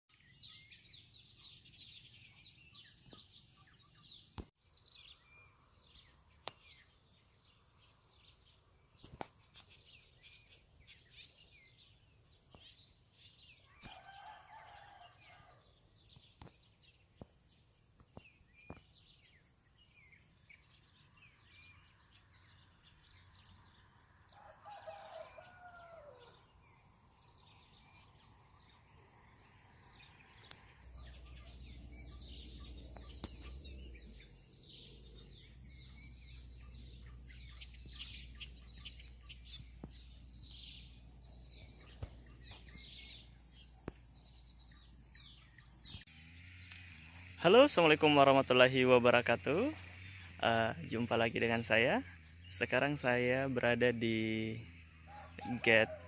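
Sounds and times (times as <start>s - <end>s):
small birds chirping: 0.1s - 56.0s
rooster crowing faintly: 13.7s - 15.7s, 24.3s - 26.5s, 55.1s - 56.0s.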